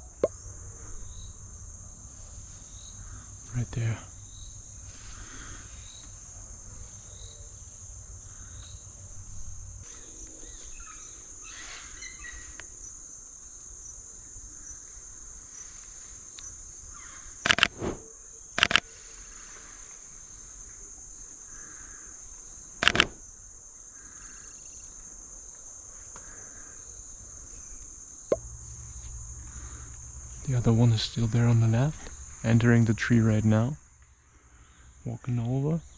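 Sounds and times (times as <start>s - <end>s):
insects droning: 0.3s - 9.8s, 13.2s - 19.6s, 21.5s - 32.9s
camera shutter clicks: 17.5s - 18.0s, 22.8s - 23.2s
faint bird chirps: 24.2s - 24.9s.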